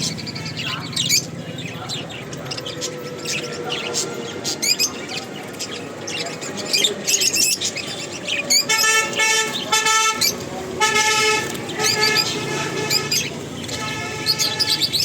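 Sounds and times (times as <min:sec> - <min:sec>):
caged birds chirping: 0:00.0 - 0:15.0
vehicle horn: 0:00.1 - 0:01.0, 0:08.5 - 0:15.0.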